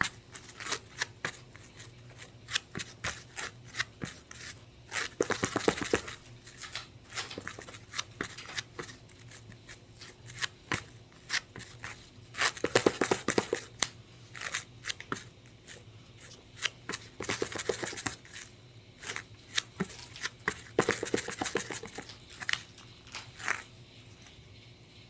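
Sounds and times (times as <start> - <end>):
crinkly rustling: 0.0 - 24.5
small objects tapping: 12.4 - 15.3, 19.0 - 23.7.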